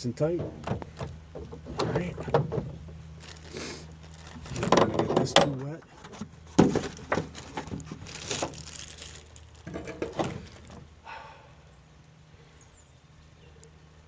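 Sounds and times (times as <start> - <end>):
objects knocking and clattering: 0.4 - 3.0, 4.4 - 8.6, 9.6 - 10.8.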